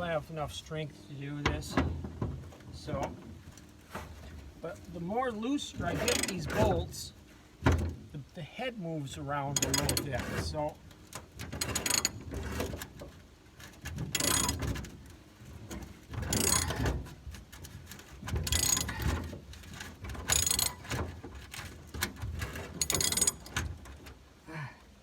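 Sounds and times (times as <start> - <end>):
ratchet wrench clicking: 6.0 - 6.4, 9.6 - 10.1, 11.6 - 12.2, 14.1 - 14.6, 16.3 - 16.8, 18.4 - 19.1, 20.3 - 20.9, 22.8 - 23.5.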